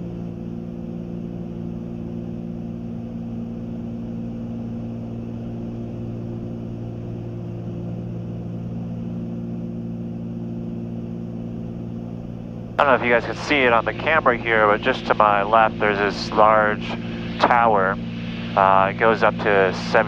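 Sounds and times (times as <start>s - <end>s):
twin propeller engines droning: 6.5s - 20.0s.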